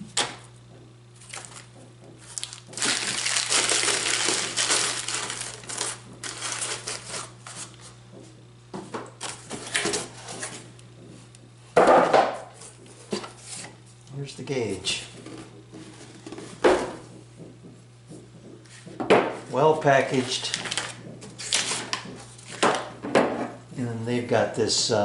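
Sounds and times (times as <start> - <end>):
packing material crinkling: 1.2 - 7.8, 20.0 - 22.0.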